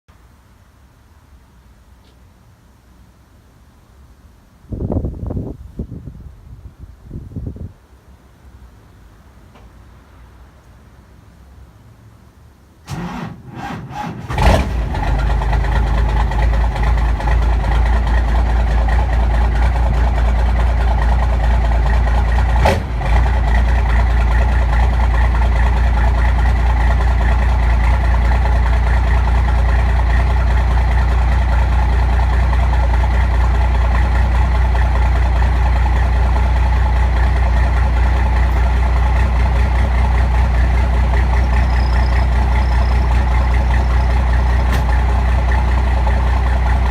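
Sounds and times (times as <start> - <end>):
diesel engine cranking and idling: 12.1 - 46.9
sharp engine knock: 44.6 - 46.2.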